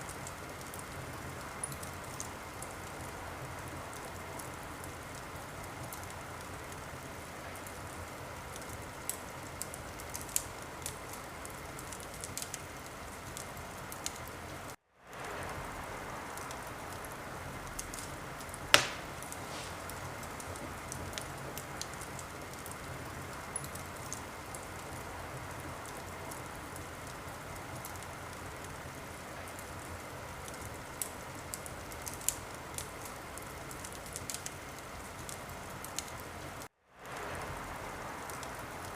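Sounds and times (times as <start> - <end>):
wood fire crackling: 0.0 - 38.9
loud pop of fire: 18.7 - 19.9.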